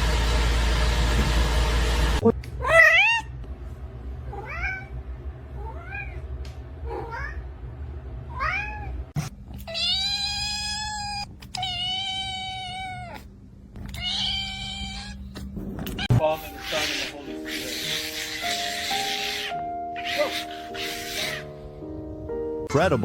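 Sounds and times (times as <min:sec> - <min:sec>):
cat meowing: 0:02.6 - 0:03.3, 0:09.6 - 0:21.5.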